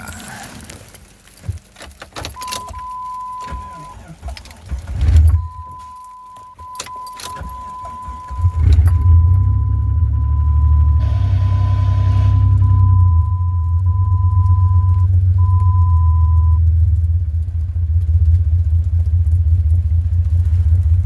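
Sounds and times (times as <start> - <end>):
keys jangling: 0.0 - 11.1
car engine starting and idling: 0.0 - 21.0
electronic warning chime: 2.2 - 4.5, 5.1 - 16.6.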